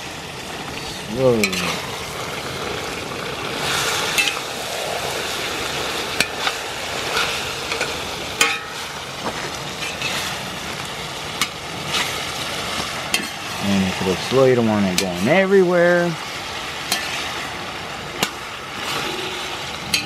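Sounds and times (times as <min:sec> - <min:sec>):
meat sizzling: 0:00.0 - 0:20.0
metal spatula scraping: 0:16.9 - 0:17.3, 0:18.2 - 0:20.0.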